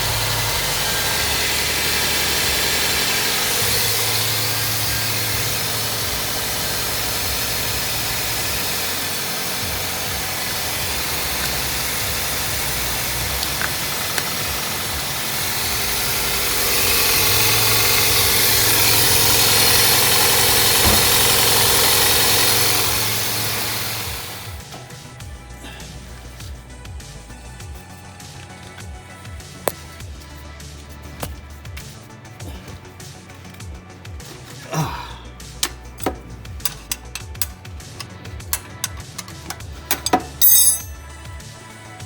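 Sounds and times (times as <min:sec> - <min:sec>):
whirring hiss: 0:00.0 - 0:27.5
car engine idling: 0:00.0 - 0:42.0.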